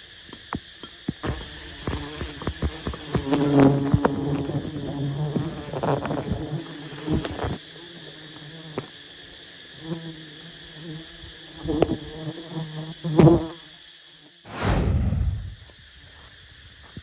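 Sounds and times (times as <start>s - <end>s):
honey bees buzzing: 1.2s - 7.6s
loud rush of noise: 14.5s - 15.8s.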